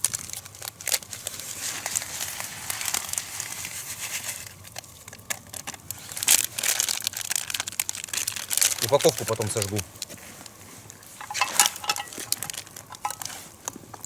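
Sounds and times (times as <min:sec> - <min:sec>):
packet crinkling and tearing: 0:00.0 - 0:14.0.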